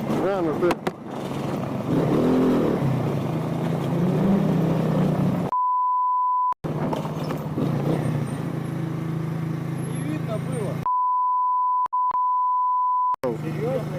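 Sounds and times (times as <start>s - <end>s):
censor bleep: 5.5s - 6.6s, 10.9s - 13.2s
motorcycle engine running: 6.7s - 10.8s.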